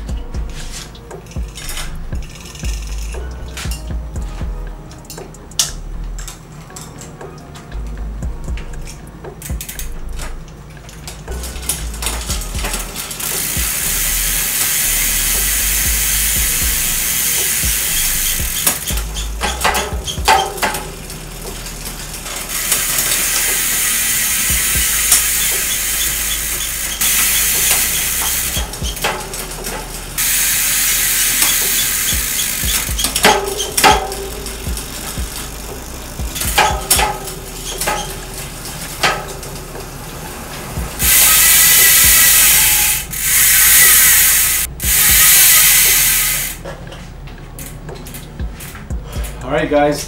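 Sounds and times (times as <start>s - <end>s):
bike chain running through pulleys: 0.0s - 4.6s, 5.6s - 46.8s
freehub ratchet buzzing: 0.0s - 50.0s
sharp clunks: 31.4s - 39.6s.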